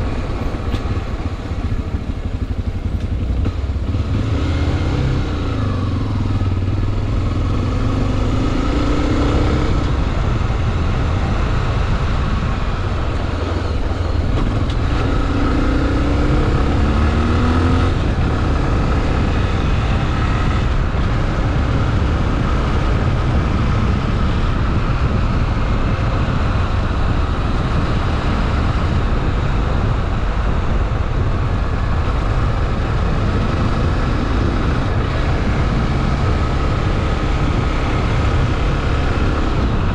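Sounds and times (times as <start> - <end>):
motorcycle engine running: 0.0 - 39.9
rush of noise: 0.0 - 39.9.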